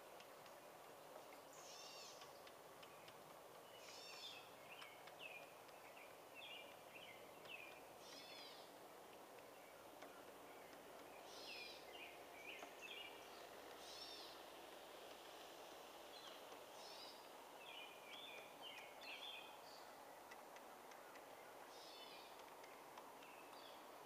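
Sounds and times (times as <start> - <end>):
model train rolling on track: 0.0 - 24.0
bird chirping: 1.0 - 24.0.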